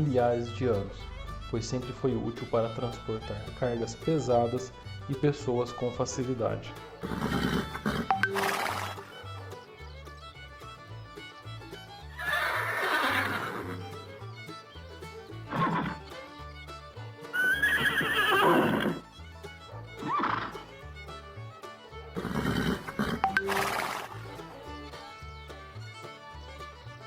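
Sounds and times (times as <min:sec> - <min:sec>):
horse neighing: 0:06.9 - 0:09.4, 0:12.2 - 0:14.1, 0:15.5 - 0:16.1, 0:17.3 - 0:19.0, 0:19.9 - 0:20.8, 0:22.1 - 0:24.4.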